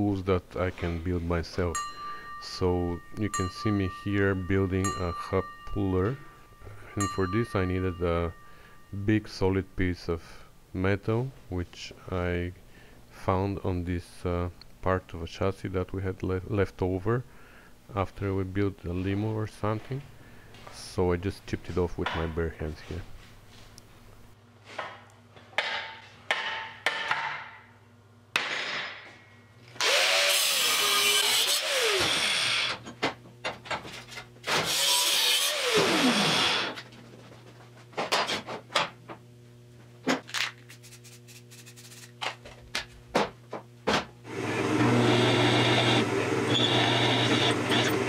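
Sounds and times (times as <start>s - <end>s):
power tool grinding steel: 29.8s - 32.7s, 34.6s - 36.8s, 44.3s - 48.0s.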